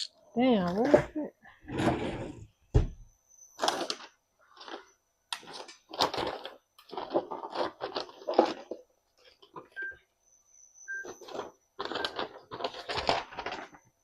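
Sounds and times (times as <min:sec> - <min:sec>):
packages rustling and moved about: 0:03.6 - 0:10.0, 0:10.9 - 0:14.0.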